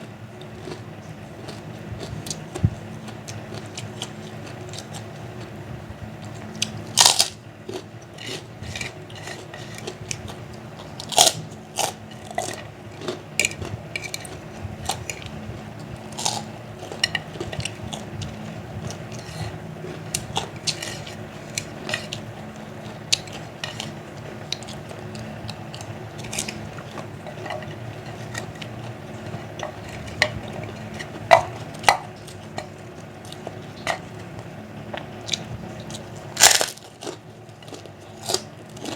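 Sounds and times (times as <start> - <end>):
crunching and chewing crackers: 0.0 - 38.9
steady low hum: 0.0 - 38.9.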